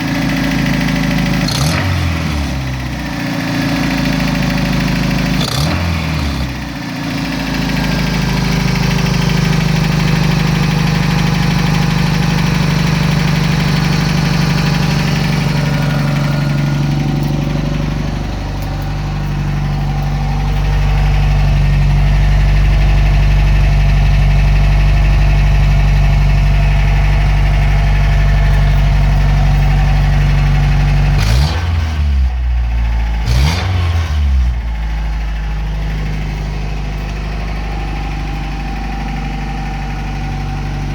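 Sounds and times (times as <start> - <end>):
truck engine idling and revving: 0.0 - 40.9.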